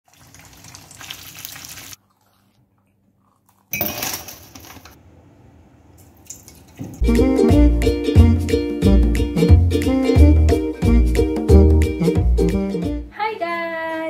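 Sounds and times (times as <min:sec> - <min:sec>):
food sizzling in oil: 0:00.1 - 0:02.0.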